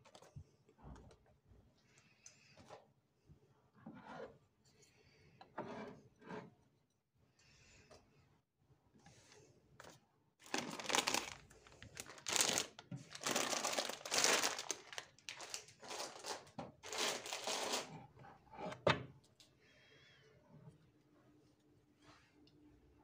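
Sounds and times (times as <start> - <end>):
packaging crinkling: 10.4 - 17.9.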